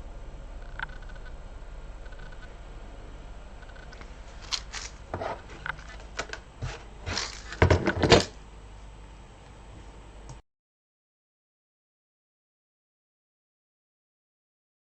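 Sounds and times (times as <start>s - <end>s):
plastic containers clicking and knocking: 5.5s - 8.4s.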